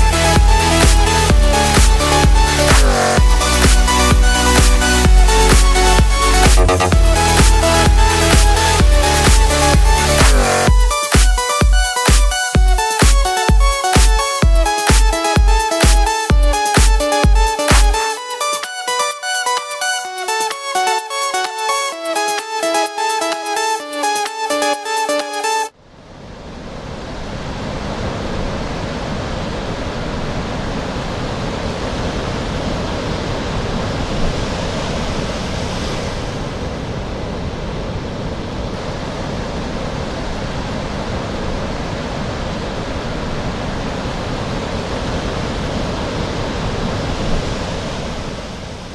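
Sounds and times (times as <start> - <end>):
ocean waves breaking on beach: 26.1 - 48.9.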